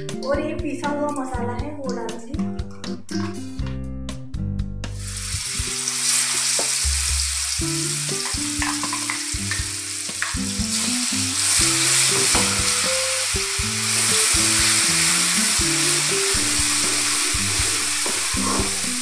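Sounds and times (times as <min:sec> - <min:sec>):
paste sizzling in hot oil: 0:05.0 - 0:19.0.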